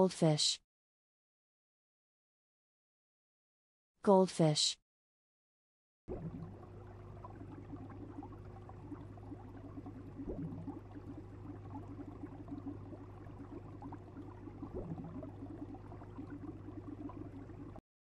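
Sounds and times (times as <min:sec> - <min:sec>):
faint bubbling water: 0:06.1 - 0:17.8
short rising bloops: 0:06.1 - 0:17.8
steady low hum: 0:06.1 - 0:17.8.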